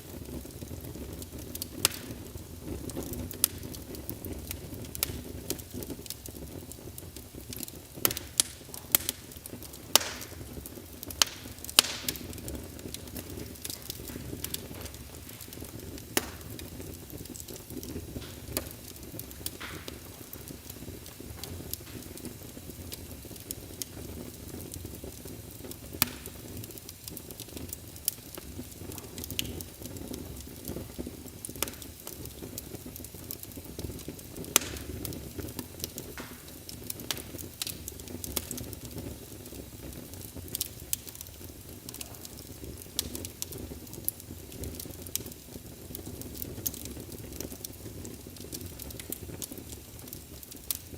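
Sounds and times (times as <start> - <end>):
fireplace fire crackling: 0.0 - 50.9
low rush of flames: 0.0 - 50.9
sharp wood pops: 10.0 - 10.3, 16.1 - 16.7.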